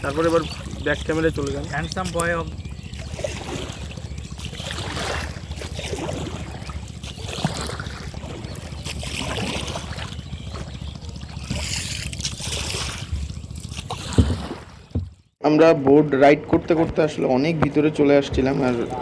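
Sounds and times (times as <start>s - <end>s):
paddles splashing in water: 0.0s - 19.0s.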